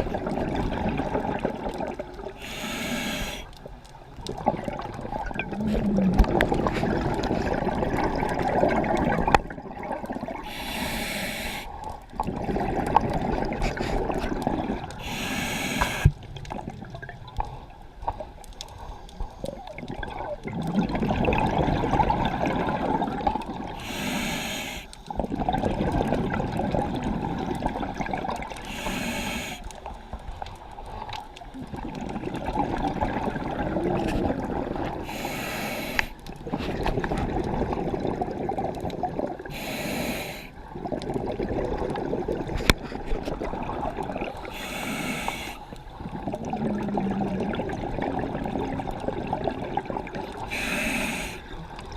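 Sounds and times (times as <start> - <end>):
bubbling exhaled air: 0.0 - 3.6, 4.2 - 17.7, 18.8 - 30.0, 30.9 - 51.9
regulator inhale hiss: 2.4 - 3.5, 10.4 - 11.9, 15.0 - 16.1, 23.8 - 25.0, 28.6 - 29.9, 35.0 - 36.2, 39.5 - 40.5, 44.4 - 45.8, 50.5 - 51.5.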